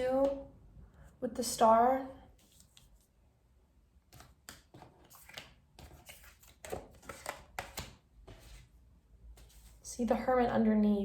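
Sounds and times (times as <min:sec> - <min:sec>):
cards flicking and rustling: 0:04.1 - 0:08.6.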